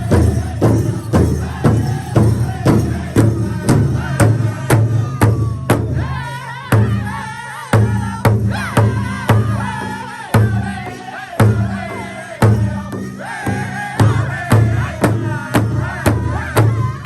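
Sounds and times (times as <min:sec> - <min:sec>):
big hand drum beating: 0:00.0 - 0:17.0
group of singers: 0:00.0 - 0:17.0.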